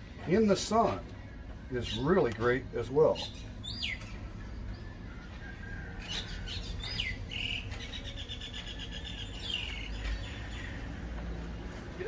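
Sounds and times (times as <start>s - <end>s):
small birds whistling: 1.8s - 10.9s.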